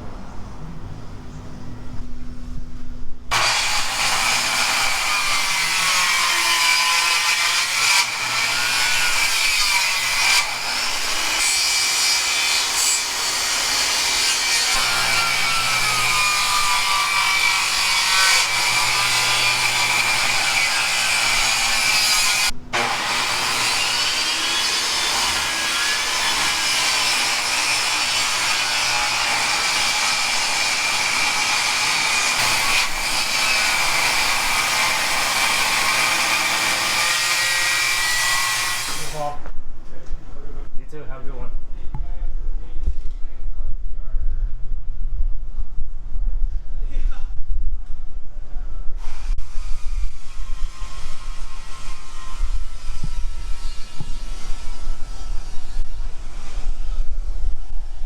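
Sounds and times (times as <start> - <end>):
power saw cutting wood: 3.3 - 39.4, 49.0 - 56.9.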